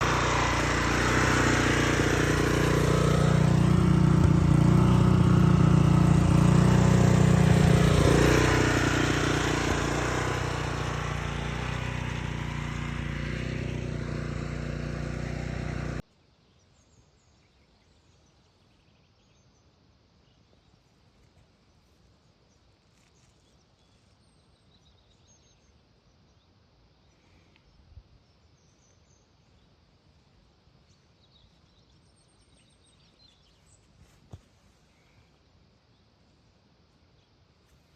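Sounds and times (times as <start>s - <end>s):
turf machine engine running: 0.0s - 16.0s.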